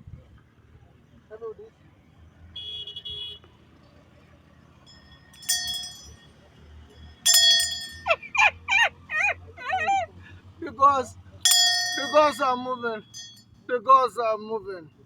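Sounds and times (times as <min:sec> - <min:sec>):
struck metal bell ringing: 0:04.9 - 0:10.0, 0:11.4 - 0:13.6
warbling wavering calls: 0:07.3 - 0:10.2.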